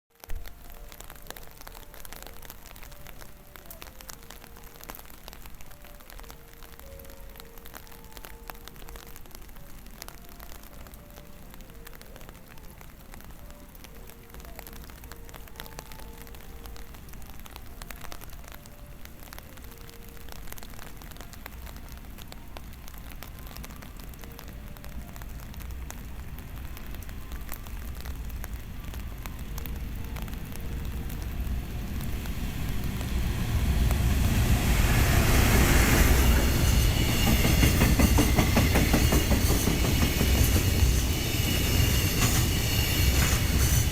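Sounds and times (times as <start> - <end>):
train rumbling on rails: 25.1 - 43.9.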